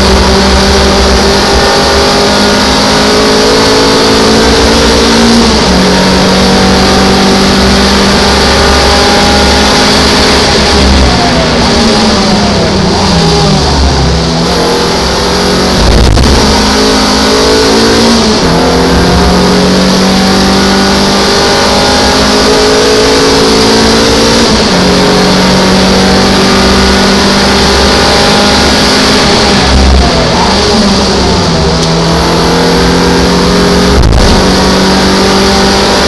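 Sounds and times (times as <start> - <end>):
race car engine running hard: 0.0 - 36.0
wind and road noise: 0.0 - 36.0.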